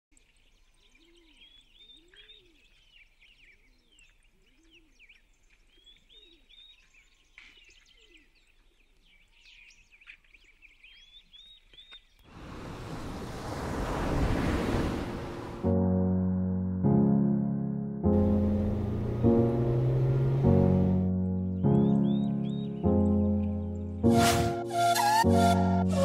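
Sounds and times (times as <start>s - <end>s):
birds chirping: 0.1s - 15.6s, 18.2s - 24.1s
lower rounded bird calls: 0.2s - 12.3s, 21.2s - 23.9s.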